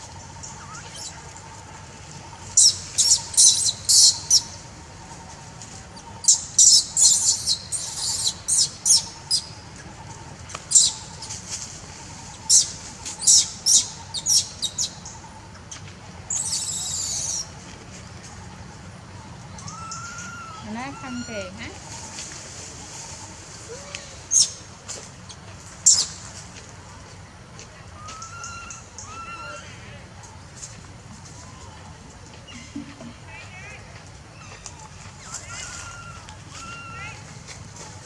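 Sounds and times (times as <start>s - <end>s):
small birds chirping: 0.0s - 17.6s
wavering bird call: 0.4s - 1.2s, 28.0s - 29.8s, 35.2s - 37.3s.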